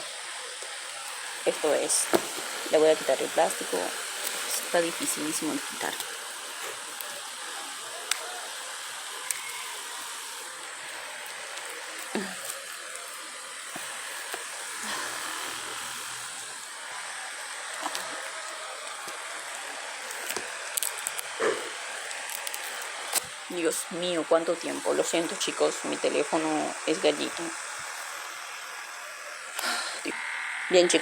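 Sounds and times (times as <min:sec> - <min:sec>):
plastic wrapping crinkling: 0:00.0 - 0:23.9
steady hiss: 0:00.0 - 0:31.0.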